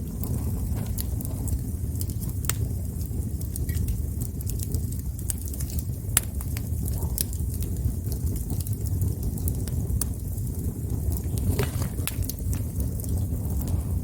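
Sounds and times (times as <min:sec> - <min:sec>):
campfire crackles and pops: 0:00.0 - 0:14.0
campfire rumble: 0:00.0 - 0:14.0.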